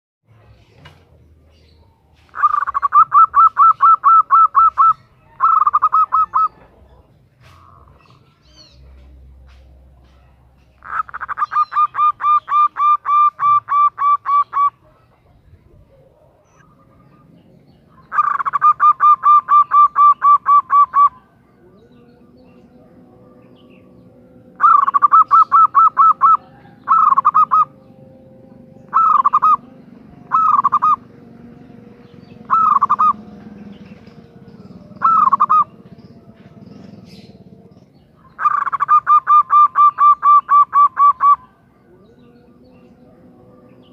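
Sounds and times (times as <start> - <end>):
dove calling in staccato series: 1.5 - 15.4, 16.0 - 21.5, 23.5 - 41.7.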